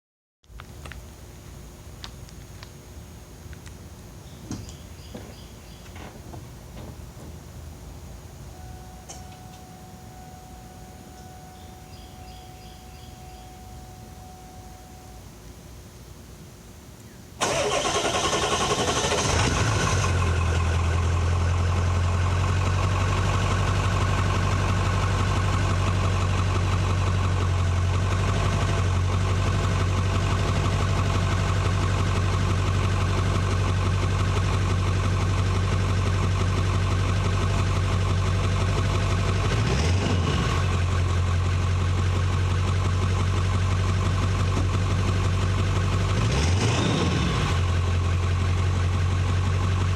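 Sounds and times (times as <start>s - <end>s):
truck engine starting and idling: 17.4s - 49.9s.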